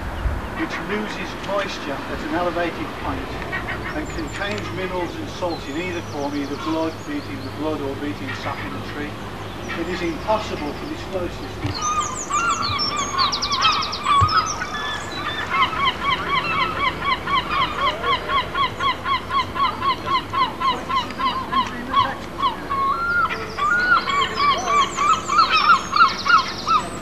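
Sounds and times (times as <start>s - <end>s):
bird repeated calls: 0.0s - 27.0s
high bird trills and chirps: 3.4s - 27.0s.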